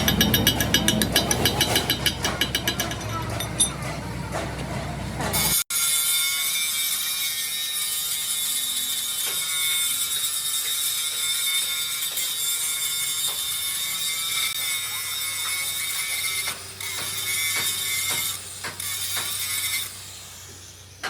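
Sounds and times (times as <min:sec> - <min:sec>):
machine tool hiss and whine: 0:13.8 - 0:21.0.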